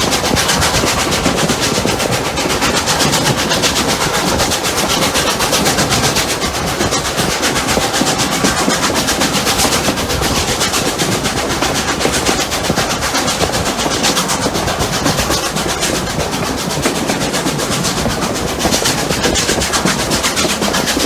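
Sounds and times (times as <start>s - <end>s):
steam locomotive exhaust beats: 0.0s - 21.0s
train running noise: 0.0s - 21.0s.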